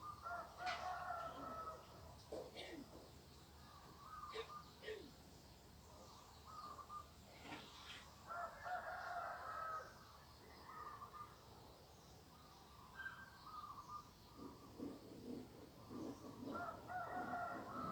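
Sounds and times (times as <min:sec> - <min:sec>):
faint rooster crowing: 0:00.0 - 0:02.7, 0:07.8 - 0:11.3, 0:13.8 - 0:17.9.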